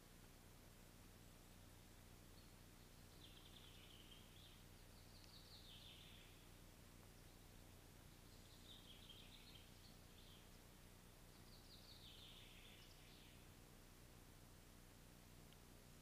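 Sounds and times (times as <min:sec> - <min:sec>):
faint hum: 0:00.0 - 0:16.0
songbird trilling: 0:02.9 - 0:06.4, 0:08.1 - 0:10.5, 0:11.3 - 0:13.4.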